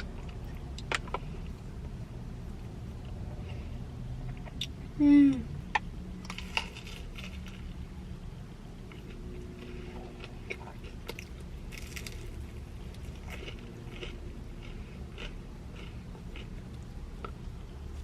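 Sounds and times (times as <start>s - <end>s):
person chewing crunchy food: 8.8s - 18.0s.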